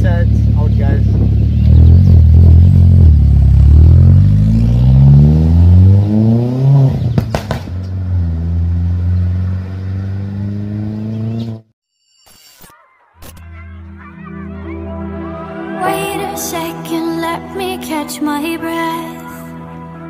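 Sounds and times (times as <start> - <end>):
car engine accelerating: 0.0 - 11.7.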